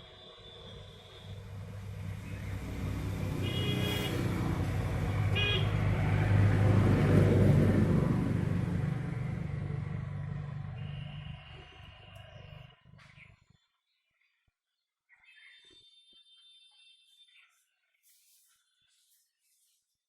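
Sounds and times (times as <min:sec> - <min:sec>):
vehicle engine passing by: 0:01.2 - 0:13.2
horn toots: 0:03.3 - 0:04.4, 0:05.3 - 0:05.8, 0:10.7 - 0:12.2.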